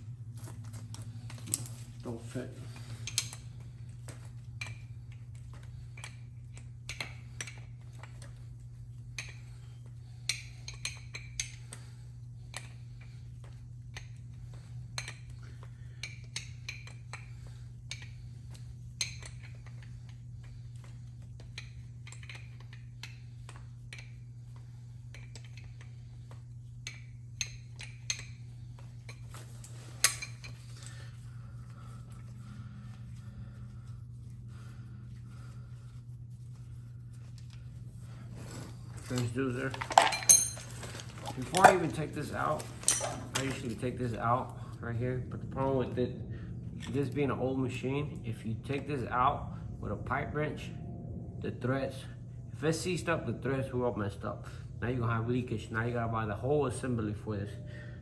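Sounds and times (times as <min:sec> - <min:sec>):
steady low hum: 0:00.0 - 0:58.0
metallic tool clinks and knocks: 0:39.0 - 0:44.0.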